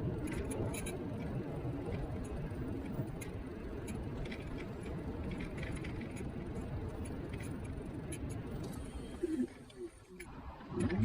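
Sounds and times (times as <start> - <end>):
faint ticks and rattles: 0.0 - 11.0
wheels rumbling on road: 0.0 - 11.0.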